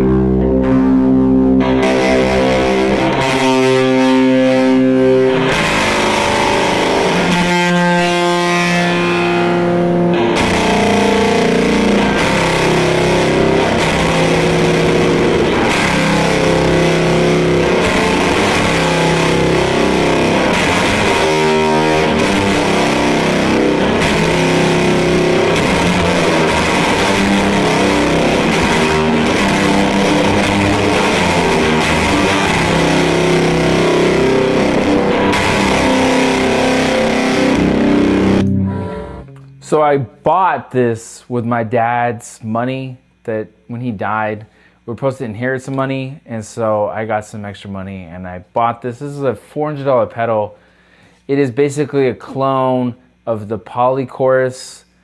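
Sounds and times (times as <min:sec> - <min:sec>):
distorted electric guitar: 0:00.0 - 0:40.2.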